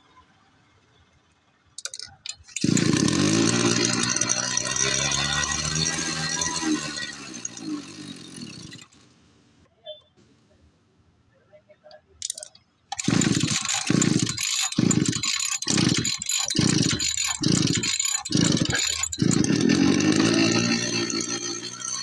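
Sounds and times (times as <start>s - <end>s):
engine cranking and starting: 1.8s - 9.0s, 12.2s - 22.0s.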